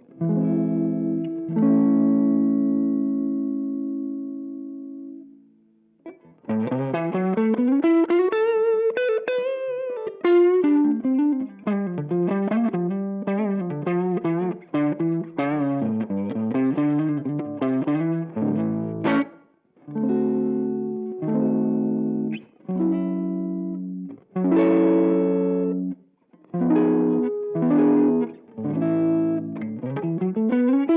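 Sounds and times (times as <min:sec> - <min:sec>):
guitar chord ringing: 0:00.0 - 0:05.3, 0:06.5 - 0:25.9, 0:26.5 - 0:30.9
overdriven electric guitar lead: 0:00.0 - 0:05.4, 0:06.0 - 0:30.9.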